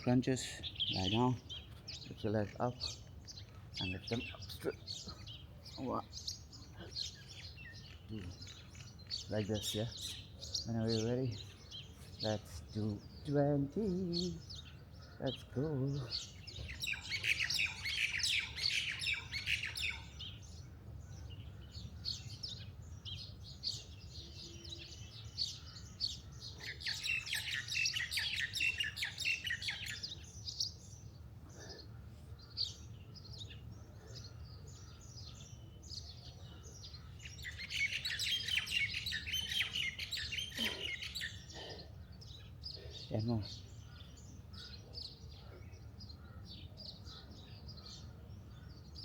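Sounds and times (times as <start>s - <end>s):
birds chirping and twittering: 0.0s - 49.0s.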